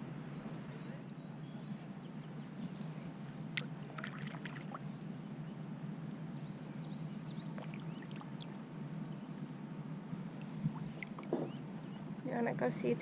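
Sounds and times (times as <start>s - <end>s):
low background noise: 0.0s - 13.0s
paddle splashing water: 3.6s - 4.8s.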